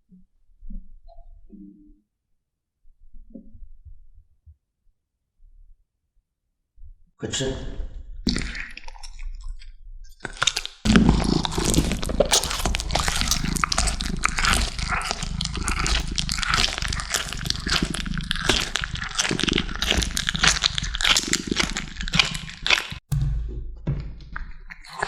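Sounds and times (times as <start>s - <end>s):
kittens chewing wet crunching: 11.6s - 23.0s.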